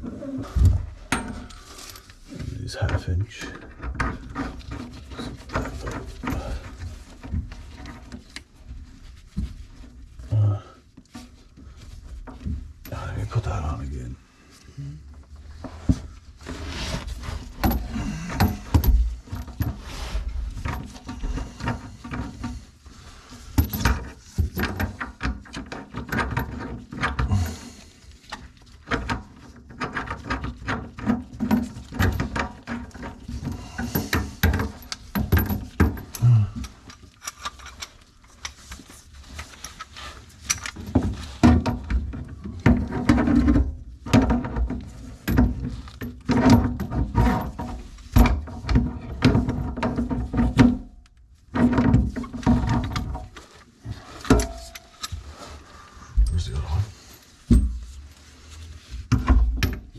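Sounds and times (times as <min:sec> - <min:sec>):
metal tools clicking and rattling: 0:54.2 - 0:55.2.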